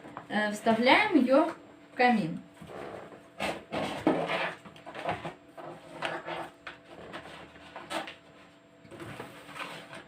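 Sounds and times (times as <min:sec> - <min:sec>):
cardboard scraping and rustling: 0:02.6 - 0:10.0.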